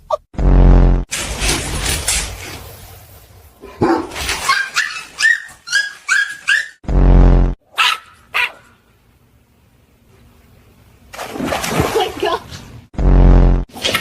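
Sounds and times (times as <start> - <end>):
dog barking: 3.8 - 6.8, 7.8 - 8.8.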